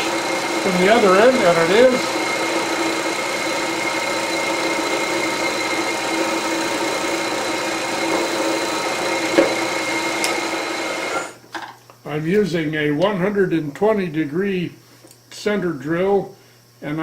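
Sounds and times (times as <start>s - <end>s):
milling machine spindle humming: 0.0s - 11.4s.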